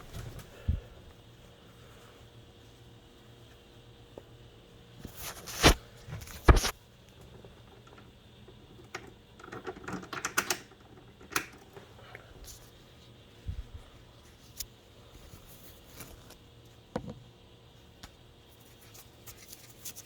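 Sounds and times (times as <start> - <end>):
clicks and light rattles: 6.5 - 11.9.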